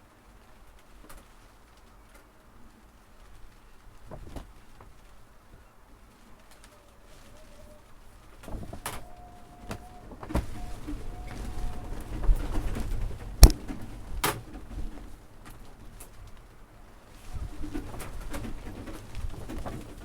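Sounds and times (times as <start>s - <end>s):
pigeon cooing: 6.7s - 15.0s.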